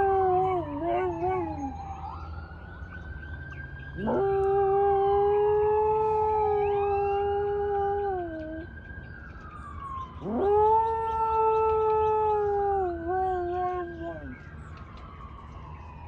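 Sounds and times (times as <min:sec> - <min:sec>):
dog howling: 0:00.0 - 0:02.1, 0:04.0 - 0:08.7, 0:10.2 - 0:14.4.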